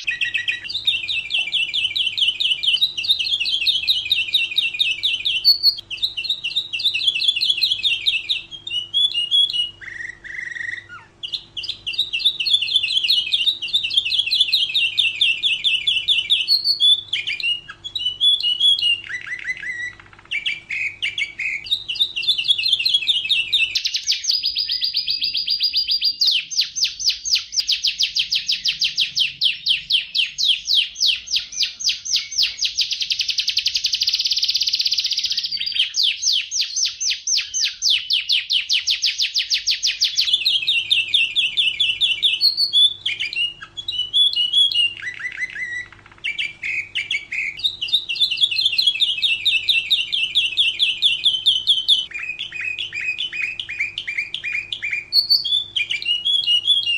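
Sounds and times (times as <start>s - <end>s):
canary singing trills: 0.0s - 56.9s.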